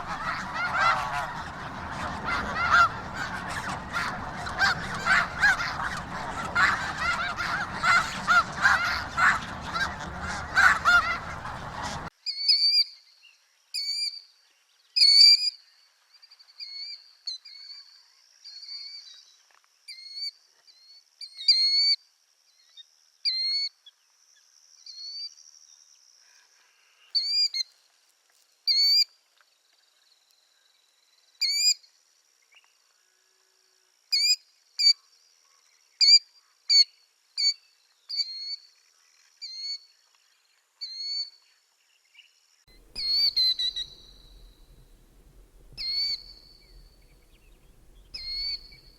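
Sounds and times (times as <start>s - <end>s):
bird's short rising call: 0.0s - 12.1s, 42.8s - 48.9s
flock of geese honking: 0.0s - 12.1s, 42.7s - 48.9s.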